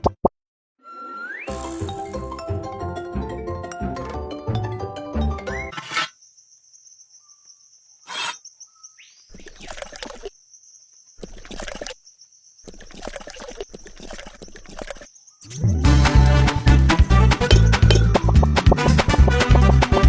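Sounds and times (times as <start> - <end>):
rough scraping and clattering: 5.7 - 6.2, 8.1 - 8.4
high insect buzz: 5.7 - 15.8.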